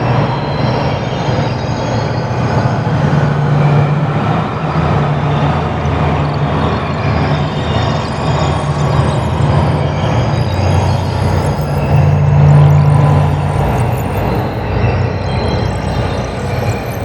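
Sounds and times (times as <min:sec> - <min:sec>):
rumbling electronic drone: 0:00.0 - 0:17.0.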